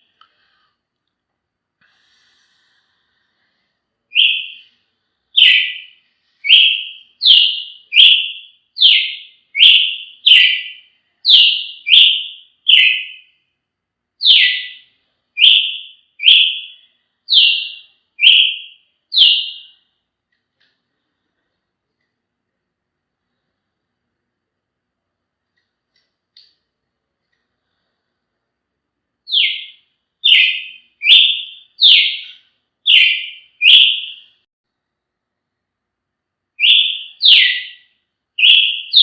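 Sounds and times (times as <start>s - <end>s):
bird sharp call notes: 5.4s - 13.3s, 36.6s - 37.8s, 38.4s - 39.0s.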